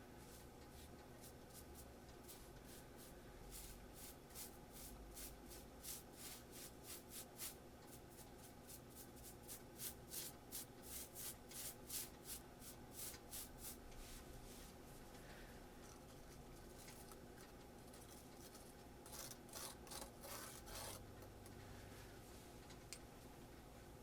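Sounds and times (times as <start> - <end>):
rhythmic scratching by hand: 0.2 - 13.8.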